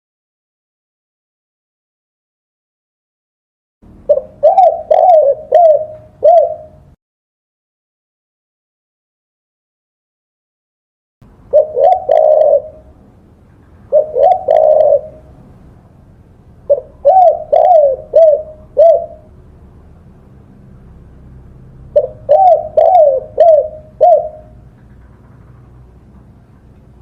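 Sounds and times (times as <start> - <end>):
dove cooing: 4.1 - 7.0, 11.5 - 13.0, 13.8 - 15.7, 16.7 - 19.4, 21.9 - 25.5.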